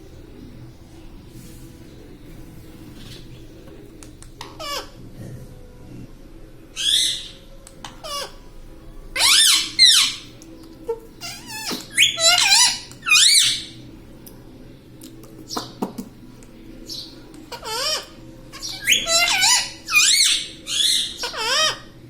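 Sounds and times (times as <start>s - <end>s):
parrot squawking: 6.8s - 8.4s, 9.2s - 10.3s, 11.2s - 13.8s, 16.9s - 22.0s.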